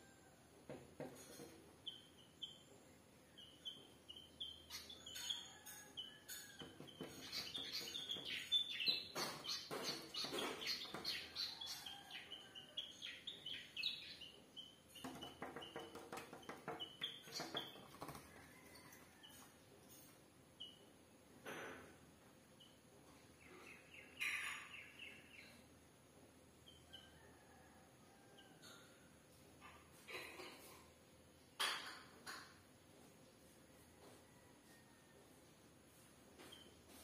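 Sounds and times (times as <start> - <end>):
small birds chirping: 1.7 - 20.0, 22.6 - 25.8
bird tapping on window glass: 14.9 - 18.8.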